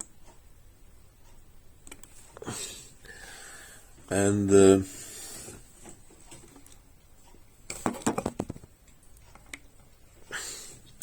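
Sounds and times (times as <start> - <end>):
hard objects clicking and knocking: 7.7 - 9.6.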